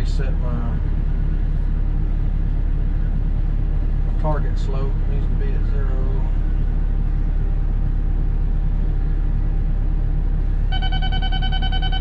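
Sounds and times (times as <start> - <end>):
excavator diesel engine running: 0.0 - 12.0
rapid electronic beeping: 10.7 - 12.0.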